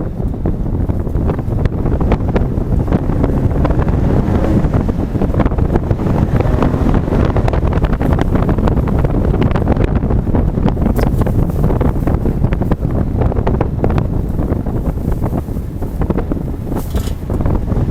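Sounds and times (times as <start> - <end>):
truck engine rumbling: 0.0 - 17.9
wind buffeting microphone: 0.0 - 17.9.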